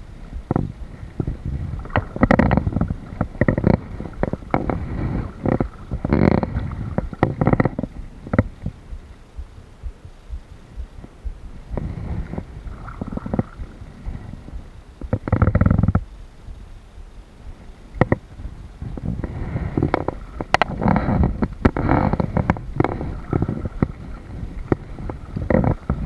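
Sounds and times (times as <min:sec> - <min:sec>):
low rumble: 0:00.0 - 0:26.0
paddle splashing in water: 0:00.5 - 0:08.7, 0:11.8 - 0:15.9, 0:18.0 - 0:26.0.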